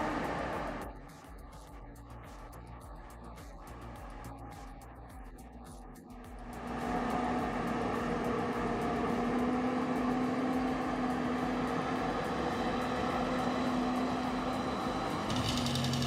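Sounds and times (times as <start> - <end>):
heavy machine engine running: 0.0 - 0.9, 6.5 - 16.0.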